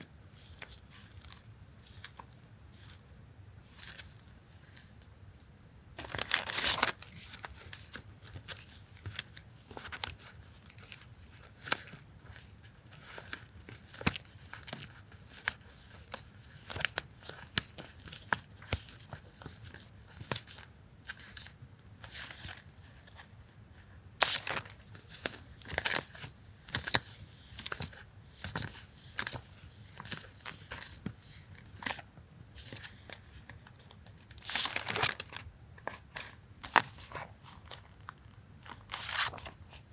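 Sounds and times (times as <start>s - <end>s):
packaging tearing: 6.0s - 7.0s
packaging crinkling and rustling: 6.0s - 19.8s, 32.6s - 39.6s.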